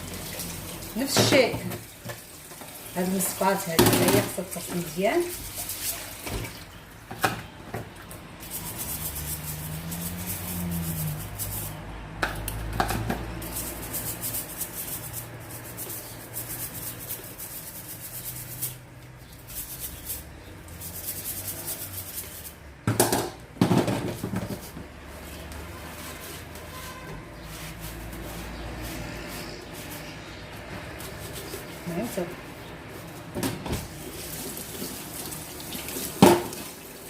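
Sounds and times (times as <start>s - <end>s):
scrubbing dishwasher parts: 0.1s - 37.0s.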